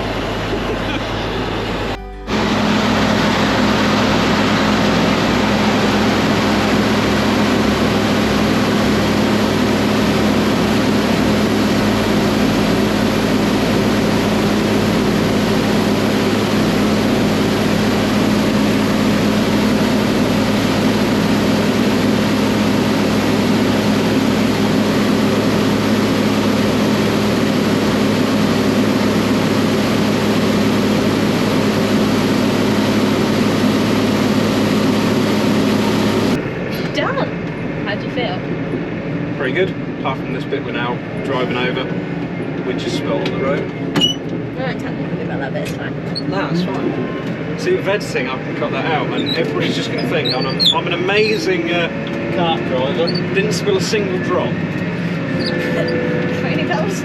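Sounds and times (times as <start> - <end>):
tractor engine droning: 0.0 - 57.0.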